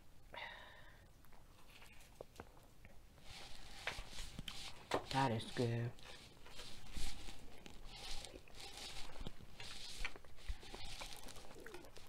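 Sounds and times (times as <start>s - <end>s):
wet mouth chewing noises: 6.0s - 12.0s.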